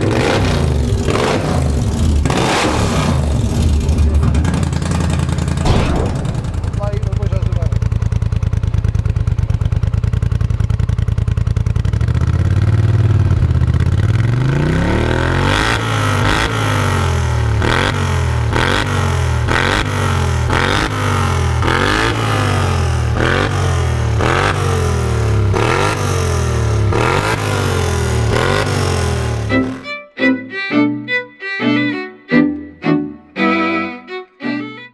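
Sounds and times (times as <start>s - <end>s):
atv engine idling and revving: 9.7s - 29.5s.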